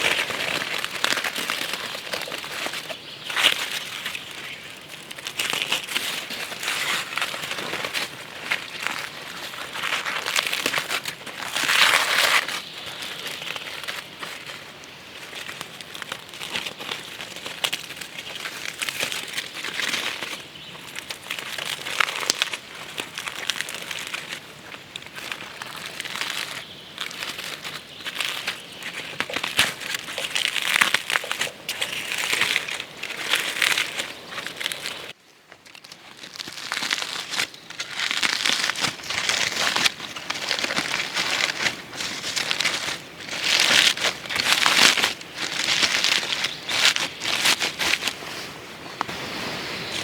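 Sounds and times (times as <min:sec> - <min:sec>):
crinkling and rustling: 0:00.0 - 0:50.0.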